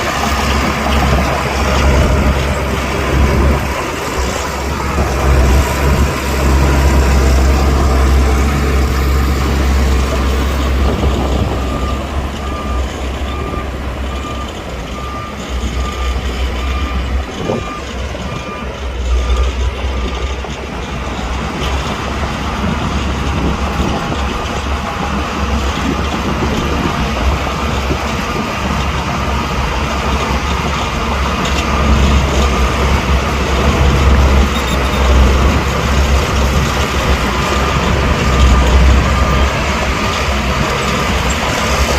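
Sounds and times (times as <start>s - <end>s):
reversing alarm beeping: 0.0s - 20.6s, 29.1s - 41.9s
heavy diesel machinery rumbling: 0.0s - 41.9s.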